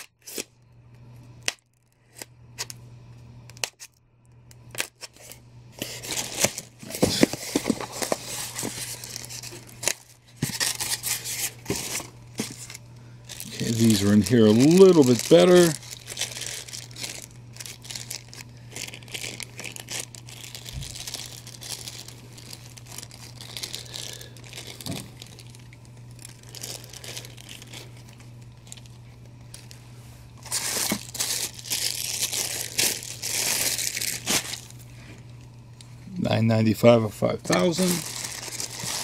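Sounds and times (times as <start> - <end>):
packaging crinkling and rustling: 4.6 - 35.4, 37.4 - 39.0.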